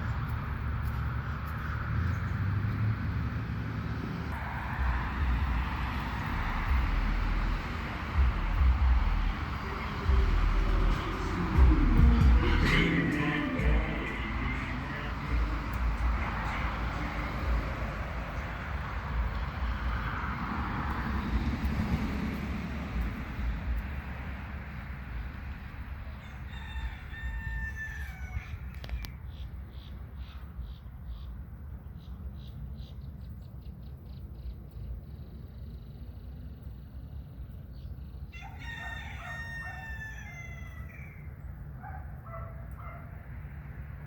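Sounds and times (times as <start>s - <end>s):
low rumble: 0.0s - 26.2s
rooster crowing: 4.3s - 7.4s, 26.0s - 29.1s, 38.3s - 41.4s.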